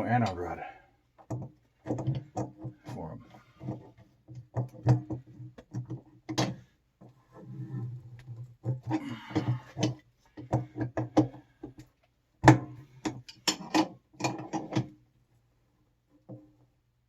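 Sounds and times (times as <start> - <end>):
tools and parts clicking and knocking: 1.2 - 2.8, 3.6 - 6.6, 8.6 - 15.0.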